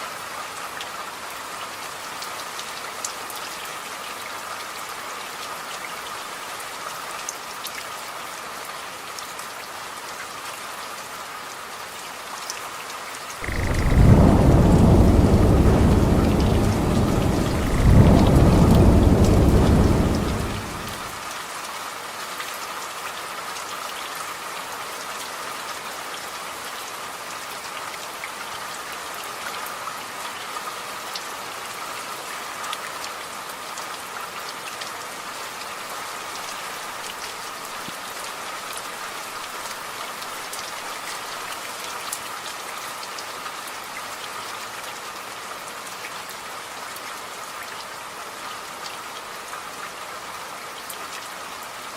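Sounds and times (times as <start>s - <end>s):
steady rain falling: 0.0s - 51.9s
thunder rolling: 13.4s - 21.2s.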